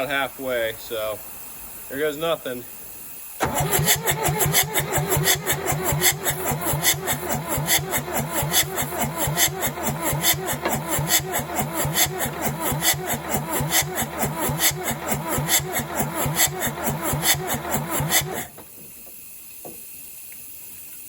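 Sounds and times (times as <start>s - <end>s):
diesel engine cranking: 3.2s - 18.8s.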